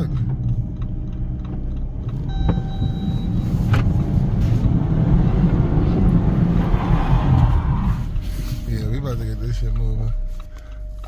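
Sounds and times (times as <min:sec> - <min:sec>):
car engine running hard: 0:00.0 - 0:11.0
short electronic beep: 0:02.3 - 0:03.6.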